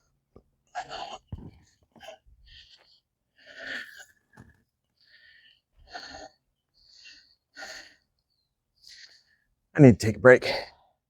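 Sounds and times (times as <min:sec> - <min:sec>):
person breathing hard: 0:00.7 - 0:04.2, 0:05.0 - 0:08.2.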